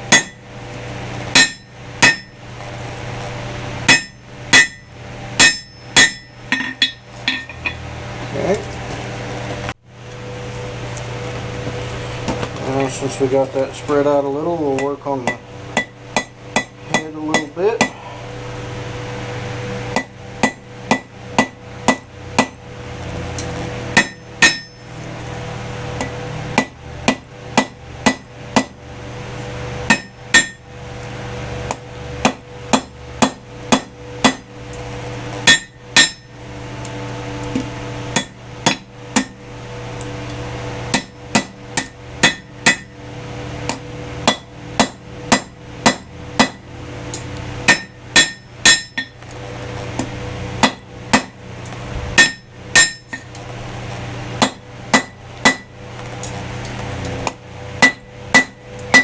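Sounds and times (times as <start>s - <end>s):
steady hum: 0.0s - 59.0s
hammer striking steel on anvil: 0.1s - 0.5s, 1.3s - 2.4s, 3.9s - 7.8s, 14.7s - 18.0s, 20.0s - 22.6s, 24.0s - 24.9s, 26.0s - 28.8s, 29.9s - 30.7s, 31.7s - 34.5s, 35.4s - 36.3s, 38.2s - 39.4s, 40.9s - 43.0s, 43.7s - 46.6s, 47.7s - 49.2s, 50.6s - 51.4s, 52.2s - 53.3s, 54.4s - 55.7s, 57.2s - 59.0s.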